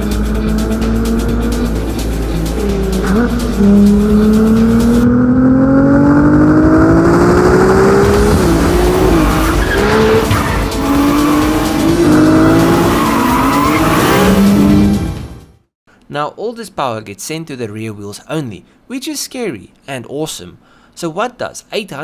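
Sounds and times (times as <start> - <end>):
car engine accelerating hard: 0.0 - 15.5.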